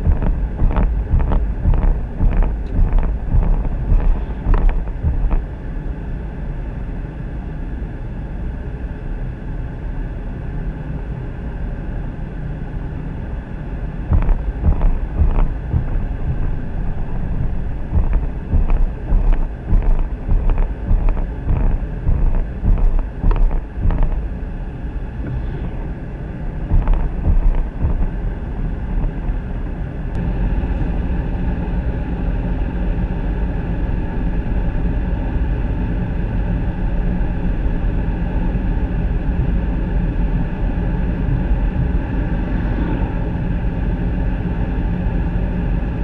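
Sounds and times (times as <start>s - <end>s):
motor drone: 14.1s - 45.6s
wind gusts on microphone: 37.2s - 46.0s.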